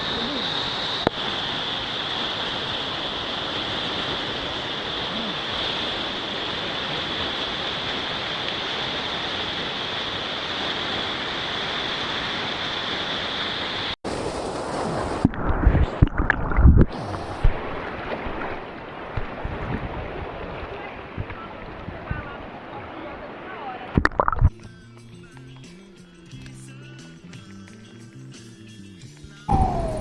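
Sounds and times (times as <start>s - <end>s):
waterfall rushing: 0.0s - 18.5s, 29.5s - 30.0s.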